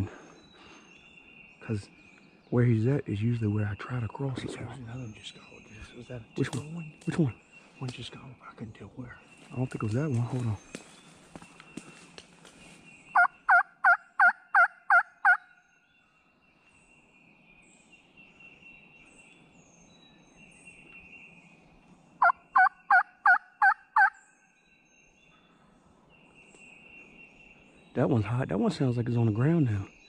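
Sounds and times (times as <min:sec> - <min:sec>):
turkey yelps: 0:13.2 - 0:15.4, 0:22.2 - 0:24.2.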